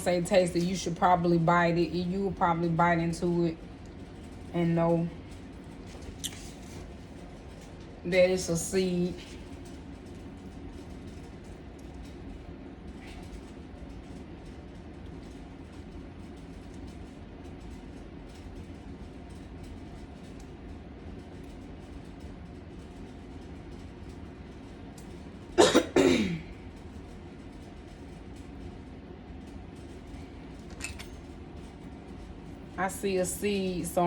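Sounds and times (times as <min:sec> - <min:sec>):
low room hum: 0:00.0 - 0:34.0
person coughing: 0:25.6 - 0:26.5.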